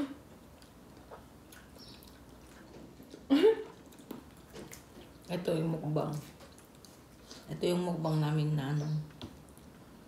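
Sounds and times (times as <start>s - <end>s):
chewing mango: 0.0s - 7.9s.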